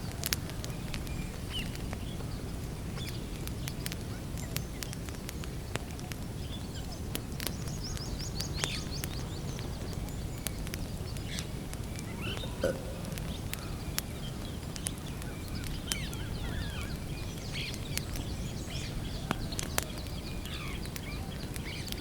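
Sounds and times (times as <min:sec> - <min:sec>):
campfire crackling and popping: 0:00.0 - 0:22.0
bird chirping: 0:07.6 - 0:19.4.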